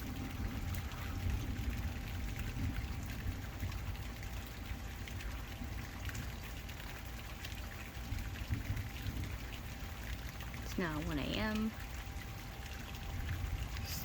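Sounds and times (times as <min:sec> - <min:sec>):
steady rain patter: 0:00.0 - 0:14.0.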